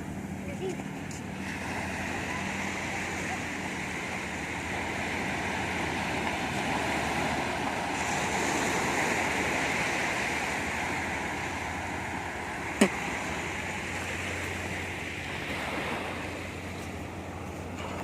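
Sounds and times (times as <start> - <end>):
waves breaking on beach: 0.0 - 18.0.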